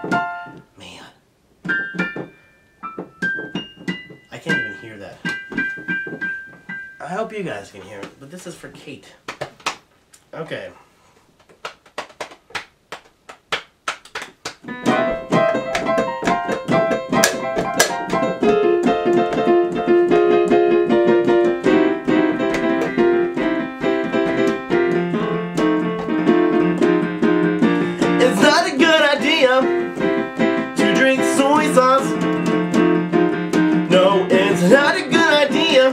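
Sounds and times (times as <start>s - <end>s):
electronic keyboard piano chords: 0.0s - 0.6s, 1.6s - 7.1s, 14.6s - 35.9s
sharp clicking beats: 11.4s - 35.9s
man singing: 28.0s - 29.9s, 30.8s - 32.2s, 33.8s - 35.9s.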